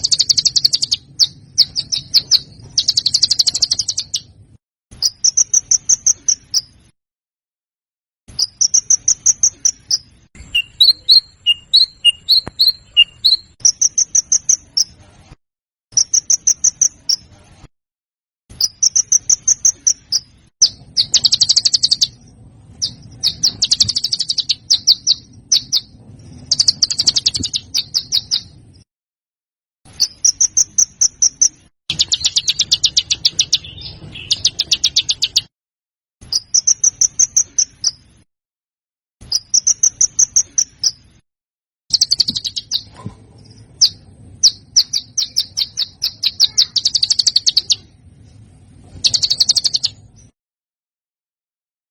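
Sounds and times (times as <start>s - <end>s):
songbird chattering: 0.0s - 4.3s, 8.4s - 15.0s, 18.6s - 22.2s, 22.8s - 28.5s, 30.0s - 35.5s, 41.9s - 42.9s, 43.8s - 47.9s, 49.0s - 50.0s.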